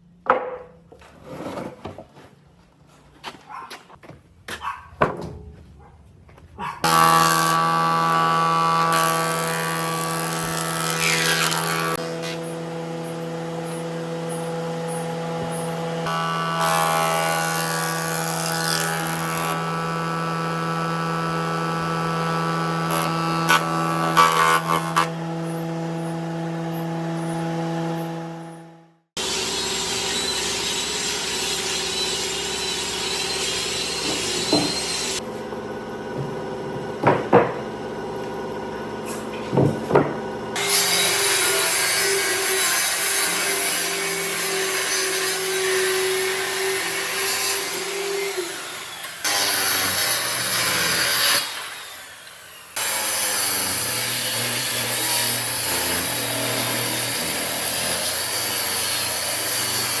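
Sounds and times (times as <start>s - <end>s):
power tool grinding wood: 6.8s - 60.0s
sharp knocks: 36.1s - 37.7s, 39.4s - 40.3s.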